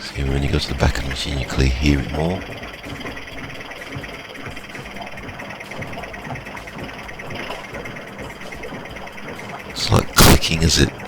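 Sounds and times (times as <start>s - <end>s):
washing machine drum clicking: 0.0s - 11.0s.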